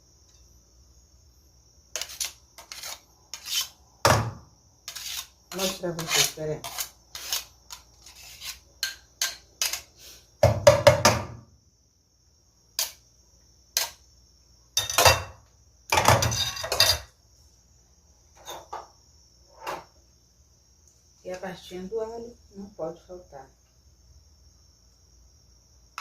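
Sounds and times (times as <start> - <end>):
kitchen utensils and dishes clattering: 14.8 - 17.1, 18.4 - 18.8.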